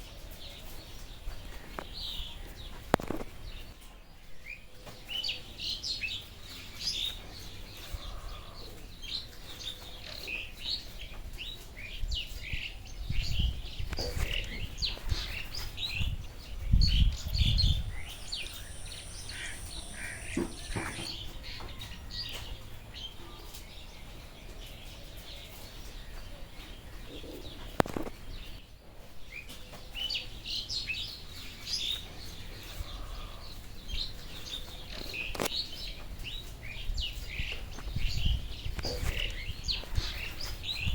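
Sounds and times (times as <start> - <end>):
small birds chirping: 0.0 - 40.9
very high buzz: 17.9 - 21.2.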